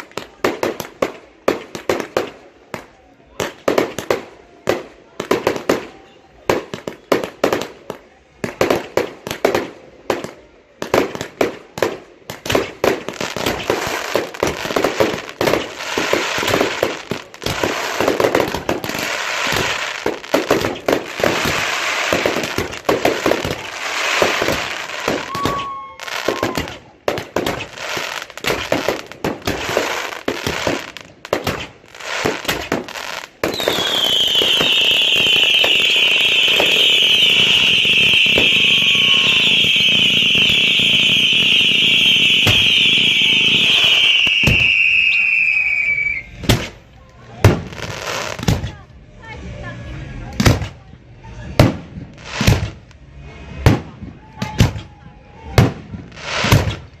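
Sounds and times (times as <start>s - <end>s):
fireworks bangs and crackling: 0.0s - 49.1s, 49.9s - 57.0s
high falling firework whistle: 25.0s - 26.7s, 33.5s - 46.4s.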